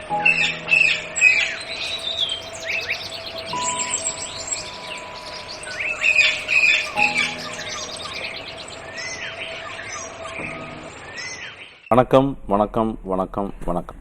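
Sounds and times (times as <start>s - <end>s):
whistled bird calls: 0.3s - 11.9s
birds chirping and calling: 0.8s - 11.8s.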